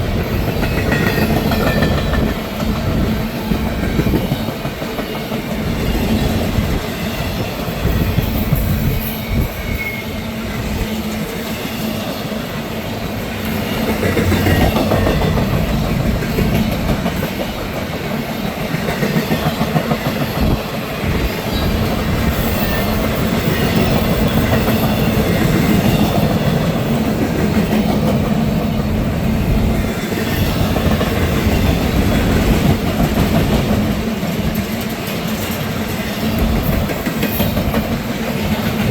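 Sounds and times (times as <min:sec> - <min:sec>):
freight train rumbling past: 0:00.0 - 0:38.9
wheel squeal: 0:07.0 - 0:10.3, 0:21.5 - 0:27.0.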